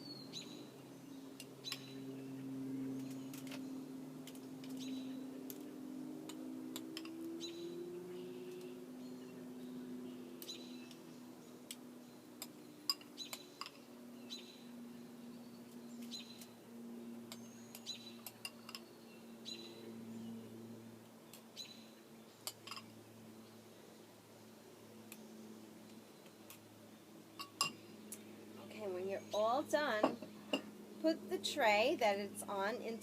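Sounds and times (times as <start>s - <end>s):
bird chirps: 0.0s - 3.8s, 4.6s - 5.6s, 7.3s - 16.5s, 17.3s - 20.5s
low steady hum: 0.0s - 33.0s.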